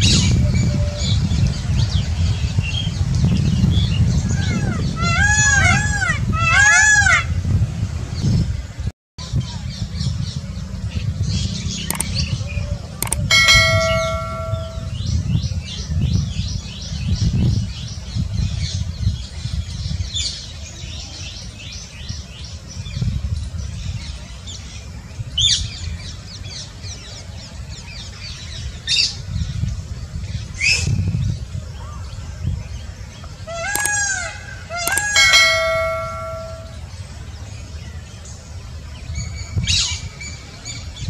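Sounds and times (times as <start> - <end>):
small birds chirping: 9.4 - 15.2, 31.4 - 38.4.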